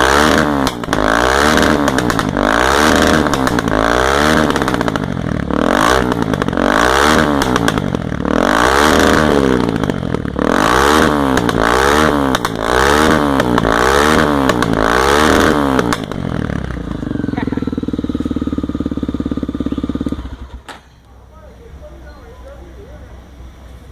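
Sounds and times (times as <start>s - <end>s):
motorcycle engine revving and idling: 0.0s - 23.9s.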